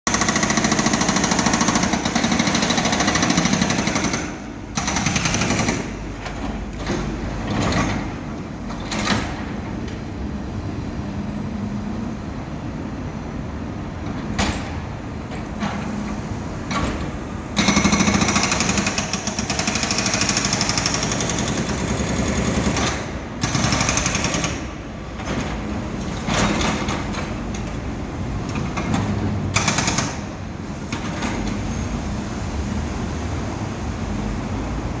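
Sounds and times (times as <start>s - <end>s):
heavy machinery hammering rock: 17.6s - 25.7s.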